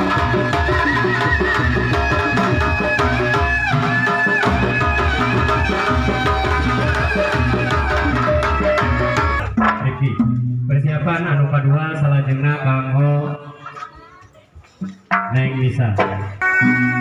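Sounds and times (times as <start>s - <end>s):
reed wind instrument melody: 0.0s - 9.6s, 16.4s - 17.0s
hand drums steady rhythm: 0.0s - 10.5s.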